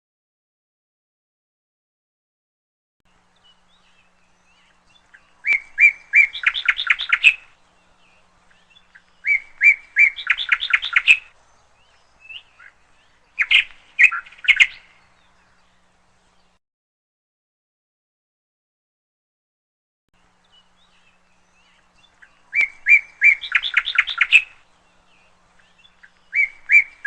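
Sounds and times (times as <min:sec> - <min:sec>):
canary chirping: 0:04.7 - 0:07.5, 0:08.6 - 0:11.3, 0:13.4 - 0:14.9, 0:21.7 - 0:24.6.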